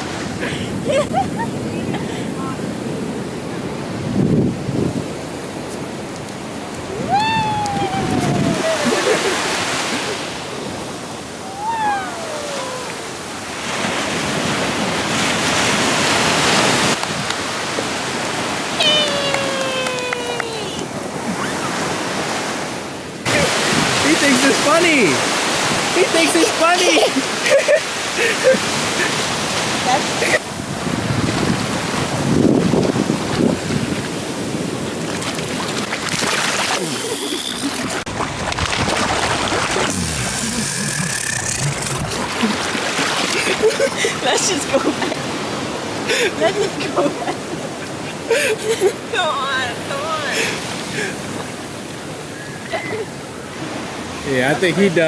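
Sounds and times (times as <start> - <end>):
wind on microphone: 0.0 - 22.5, 23.2 - 26.0, 28.4 - 44.2
ocean surf washing up beach: 0.0 - 55.0.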